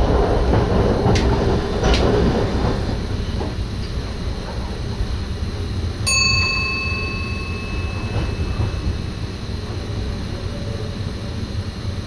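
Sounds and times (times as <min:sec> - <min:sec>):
electric train rumbling: 0:00.0 - 0:12.0
ringing cab chime: 0:06.0 - 0:10.0.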